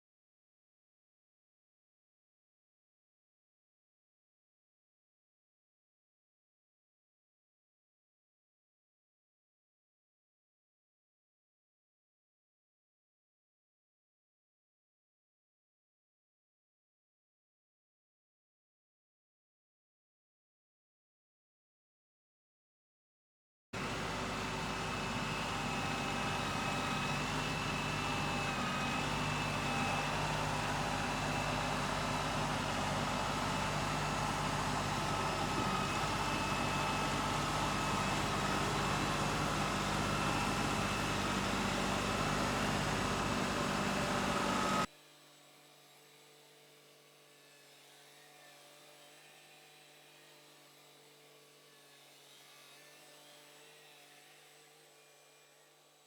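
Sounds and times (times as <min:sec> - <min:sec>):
tractor engine running: 0:23.8 - 0:44.9.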